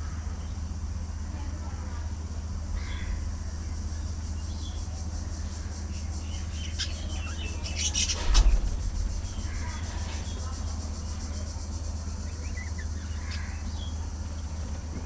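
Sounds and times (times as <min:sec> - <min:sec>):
steady low rumble: 0:00.0 - 0:15.0
budgerigars chirping: 0:05.6 - 0:08.6, 0:12.1 - 0:14.0.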